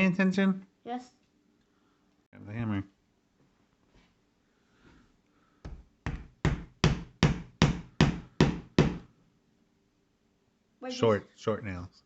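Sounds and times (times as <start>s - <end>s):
hammer tapping nail into wood: 5.6s - 9.1s.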